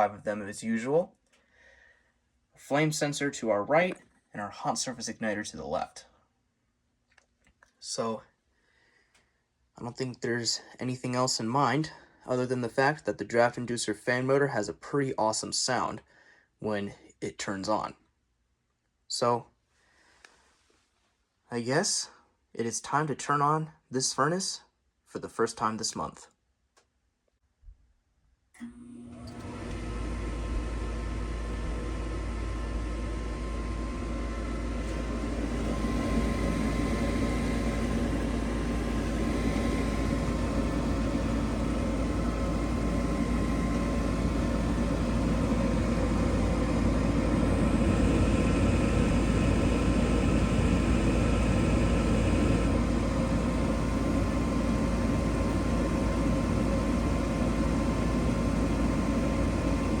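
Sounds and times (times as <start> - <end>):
furnace fan motor humming: 28.6 - 60.0.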